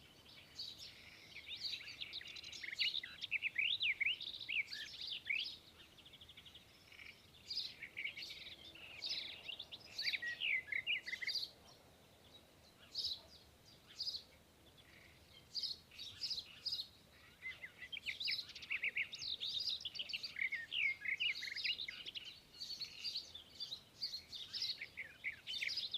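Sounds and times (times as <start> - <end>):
sparrow chirping: 0.0 - 25.9.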